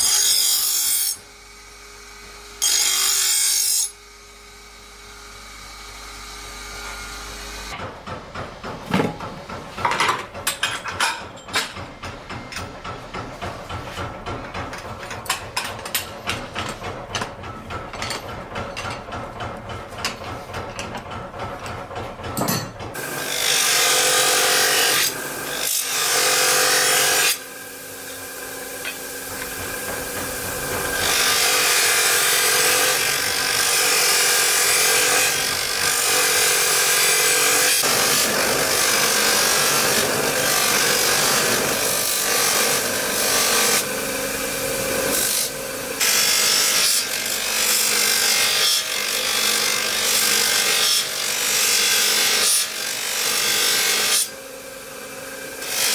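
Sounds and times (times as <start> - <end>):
power grinder grinding steel: 0.0 - 1.3, 2.6 - 4.0, 22.9 - 55.9
fast rhythmic knocking: 29.2 - 31.1.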